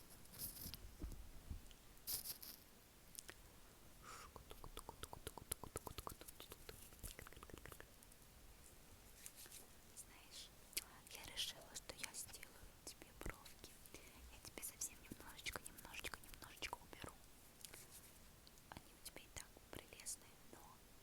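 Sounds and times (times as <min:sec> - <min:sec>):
breathy hiss: 0:04.0 - 0:04.4
wet mouth clicks: 0:04.2 - 0:07.9.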